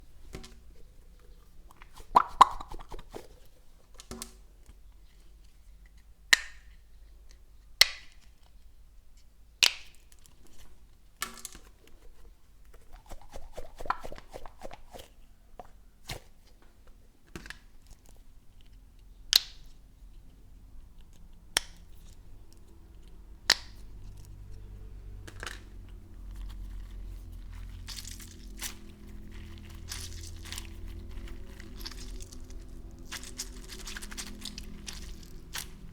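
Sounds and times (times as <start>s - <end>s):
plastic crinkling: 1.3s - 3.6s, 26.0s - 35.9s
plastic toy pops and clicks: 1.7s - 3.3s.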